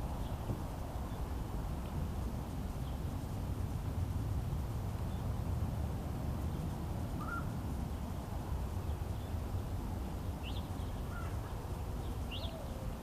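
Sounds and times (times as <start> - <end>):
short bird calls: 7.2 - 7.5, 10.4 - 11.6.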